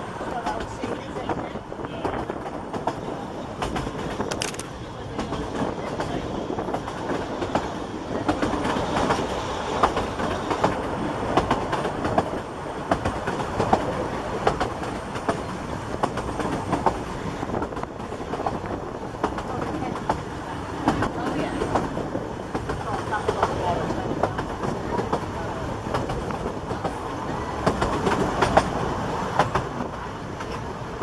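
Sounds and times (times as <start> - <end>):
railway carriage rumble and rattle: 0.0 - 31.0
wheels clicking over rail joints: 3.6 - 27.0.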